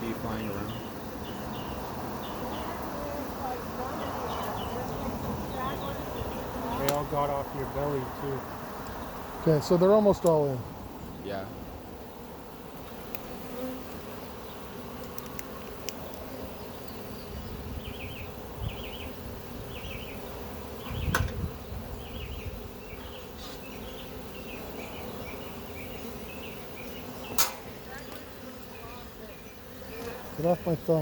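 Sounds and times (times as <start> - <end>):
bee swarm buzzing: 0.0 - 31.0
low thump: 20.8 - 21.5.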